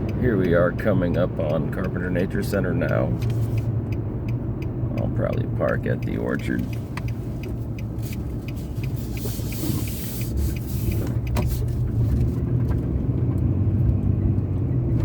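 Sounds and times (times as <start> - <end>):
engine and tyre rumble: 0.0 - 15.0
gravel hiss under tyres: 6.7 - 12.4.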